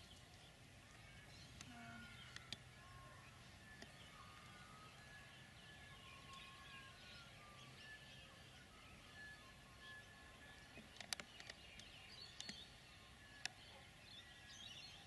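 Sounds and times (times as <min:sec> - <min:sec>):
faint distant birdsong: 0:00.0 - 0:15.0
small clicks: 0:10.8 - 0:12.6.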